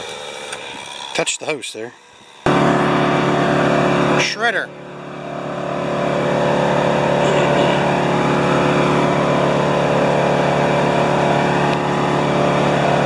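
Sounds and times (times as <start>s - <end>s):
wood chipper engine droning: 0.0s - 13.0s.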